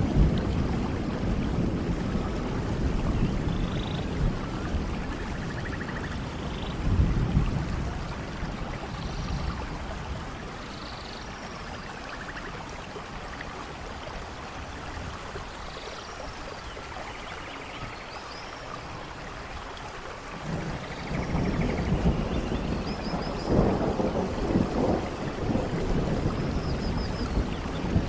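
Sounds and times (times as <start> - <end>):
low thunder rumble: 0.0 - 10.6, 20.3 - 28.0
steady rainfall: 0.0 - 28.0.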